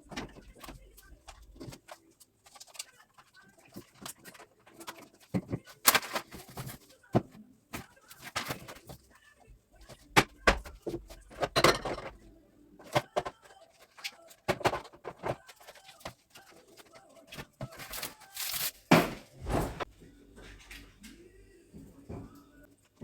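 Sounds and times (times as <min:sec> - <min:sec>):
household items knocking: 0:03.8 - 0:09.0, 0:09.9 - 0:12.2, 0:12.8 - 0:16.2
packaging rustling and crinkling: 0:15.4 - 0:18.9.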